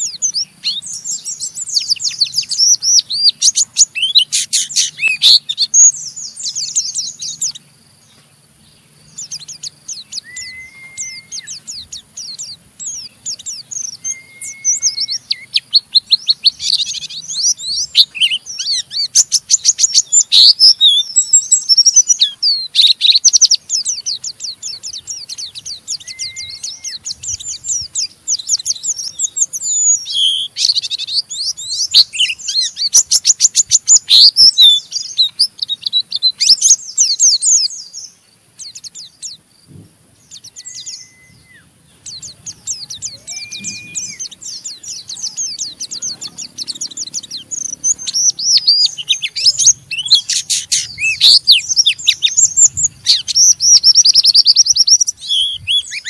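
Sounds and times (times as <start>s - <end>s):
bird whistled notes: 0.0s - 7.6s, 9.1s - 39.4s, 40.3s - 56.0s
bird twittering trills: 0.0s - 56.0s.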